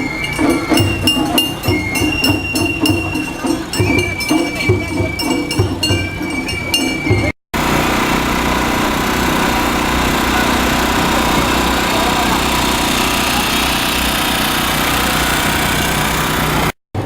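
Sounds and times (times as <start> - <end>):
small engine running steadily: 7.6 - 17.0.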